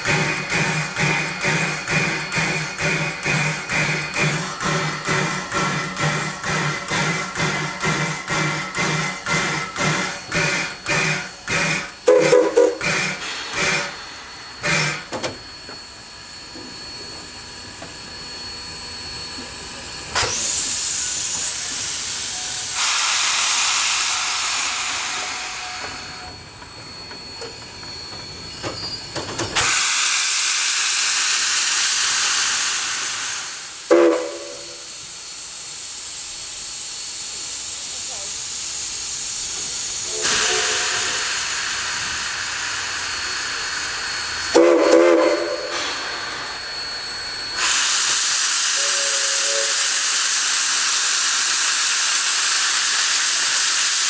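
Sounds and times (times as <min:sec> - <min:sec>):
steam locomotive hissing: 0:00.0 - 0:18.2, 0:19.4 - 0:54.0
steam whistle blast: 0:12.0 - 0:13.8, 0:33.3 - 0:35.0, 0:40.1 - 0:42.4, 0:44.5 - 0:46.5, 0:47.6 - 0:51.6.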